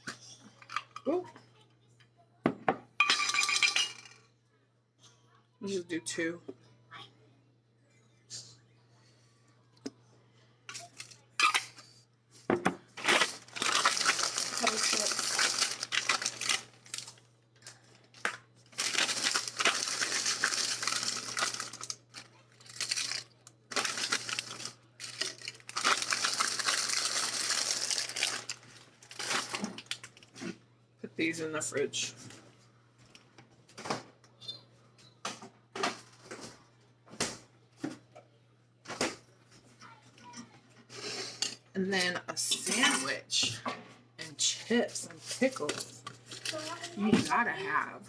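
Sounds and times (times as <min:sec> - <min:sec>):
plastic packaging crinkling: 0:13.0 - 0:30.4, 0:45.2 - 0:47.0.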